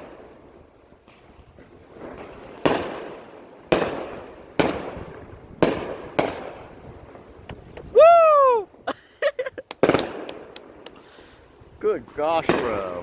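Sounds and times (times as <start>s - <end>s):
fireworks bangs with echo: 0.0s - 7.8s, 9.8s - 11.1s, 12.0s - 13.0s.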